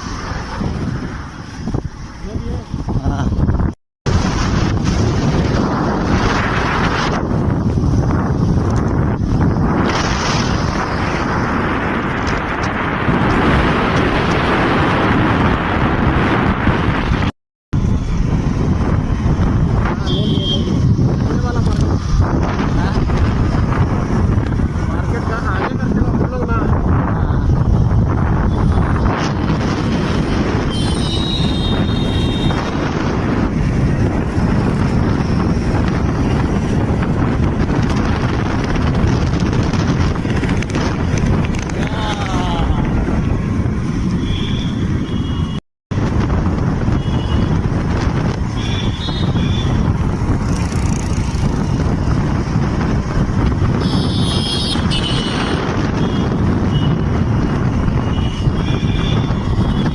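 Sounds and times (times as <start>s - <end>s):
road noise: 0.0s - 59.9s
wind buffeting microphone: 0.0s - 59.9s
motorcycle engine: 27.3s - 59.9s.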